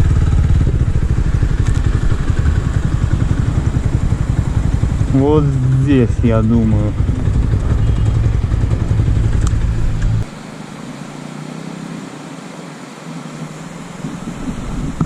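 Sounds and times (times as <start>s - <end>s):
motorcycle engine idling: 0.0s - 11.5s.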